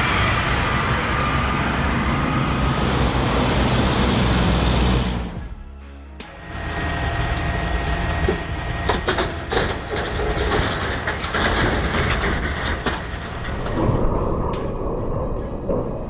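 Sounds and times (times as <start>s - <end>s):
truck engine rumble: 0.0s - 16.0s
knocks and clatter: 7.9s - 16.0s.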